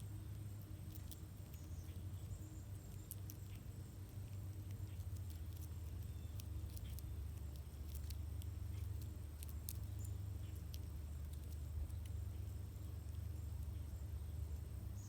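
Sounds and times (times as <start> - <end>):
low outdoor rumble: 0.0 - 15.0
faint high-pitched clicks and chirps: 0.2 - 15.0.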